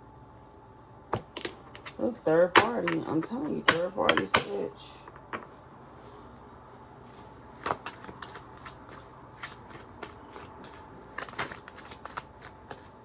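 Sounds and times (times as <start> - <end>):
cards being shuffled: 7.1 - 13.0.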